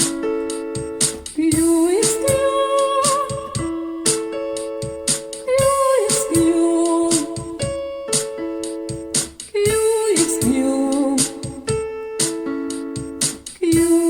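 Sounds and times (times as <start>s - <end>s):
piano playing repeated chords: 0.0s - 14.0s
person singing vocal exercise: 1.4s - 4.2s, 5.5s - 7.6s, 9.6s - 11.6s.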